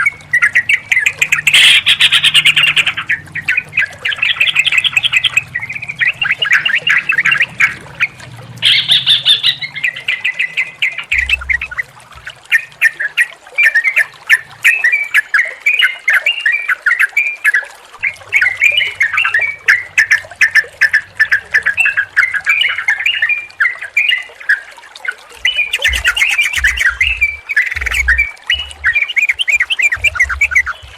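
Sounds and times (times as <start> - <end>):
birds chattering chirps: 0.0 - 16.4, 25.4 - 30.9
low thuds: 11.1 - 12.4, 25.8 - 30.9.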